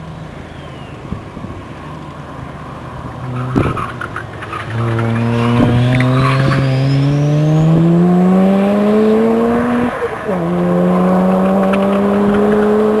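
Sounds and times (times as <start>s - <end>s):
rotary engine accelerating: 3.1s - 13.0s.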